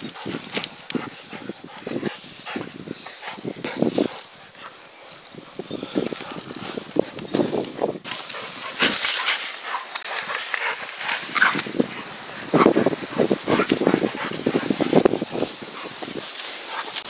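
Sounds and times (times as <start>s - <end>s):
dogs growling and snarling: 8.1s - 17.0s.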